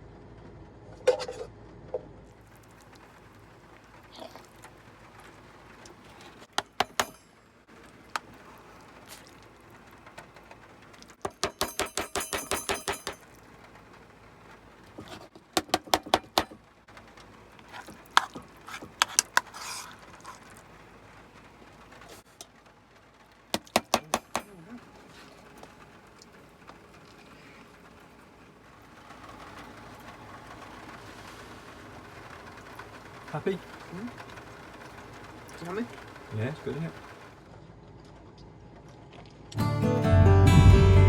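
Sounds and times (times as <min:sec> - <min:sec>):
cutlery clinking and scraping on plates: 0:11.3 - 0:13.2, 0:17.7 - 0:20.6.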